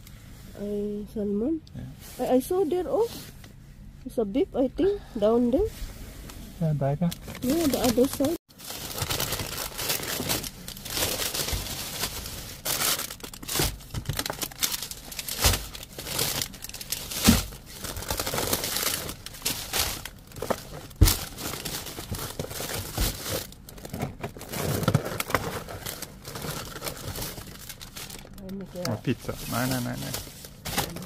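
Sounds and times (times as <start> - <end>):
plastic bags rustling: 7.1 - 31.0.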